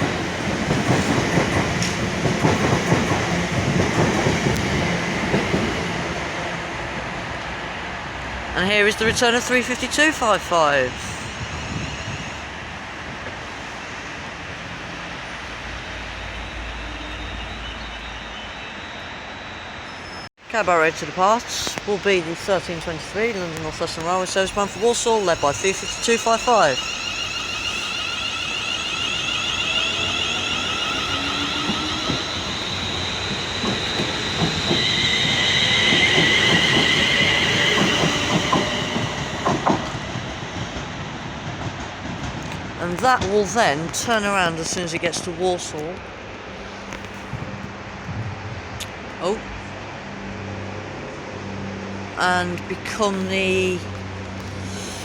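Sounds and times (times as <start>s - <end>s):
train wheels rumbling on rail: 0.0s - 18.8s, 19.8s - 55.0s
deeper rumble: 47.3s - 49.8s.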